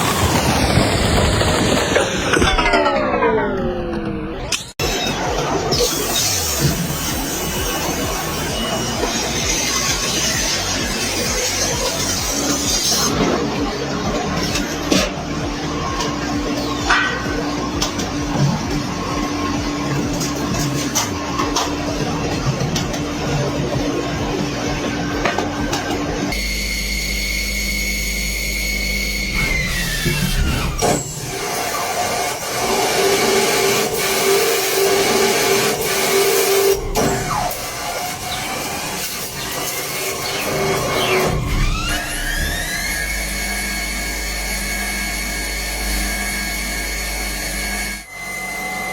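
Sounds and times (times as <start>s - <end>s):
low hum: 0.0s - 9.9s
factory machinery whining: 0.0s - 48.9s.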